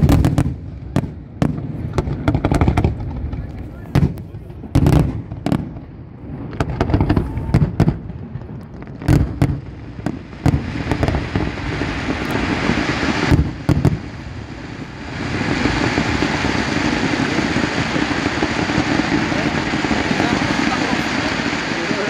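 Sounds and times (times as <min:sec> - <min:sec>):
hiss of firework fountains: 0:09.1 - 0:22.0.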